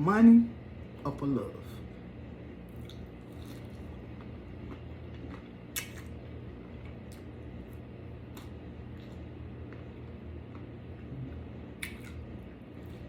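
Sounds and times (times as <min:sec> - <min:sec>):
steady low hum: 0:00.0 - 0:13.0
wet chewing clicks: 0:11.8 - 0:12.2.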